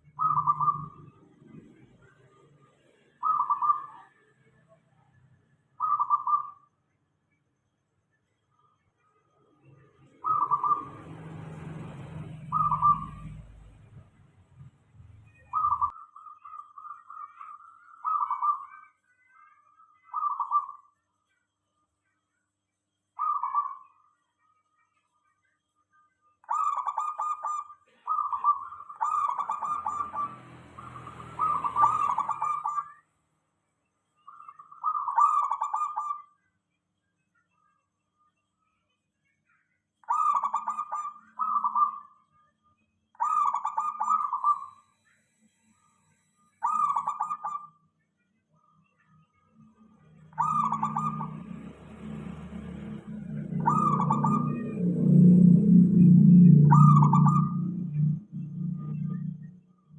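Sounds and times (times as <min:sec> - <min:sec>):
doves cooing in trills: 0:00.0 - 0:01.8, 0:03.1 - 0:04.1, 0:05.8 - 0:06.6, 0:10.1 - 0:13.7, 0:15.5 - 0:18.8, 0:20.1 - 0:20.8, 0:23.2 - 0:23.8, 0:26.4 - 0:32.9, 0:34.6 - 0:36.2, 0:40.1 - 0:42.0, 0:43.2 - 0:44.7, 0:46.6 - 0:47.7, 0:50.3 - 0:59.4
low hum: 0:50.7 - 0:59.9.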